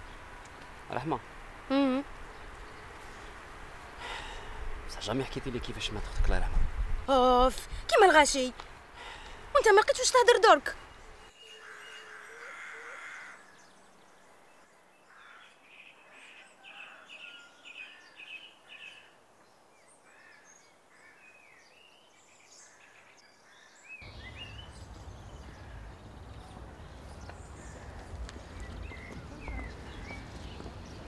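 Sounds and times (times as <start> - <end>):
birds chirping: 0.0 - 6.5, 7.1 - 31.0.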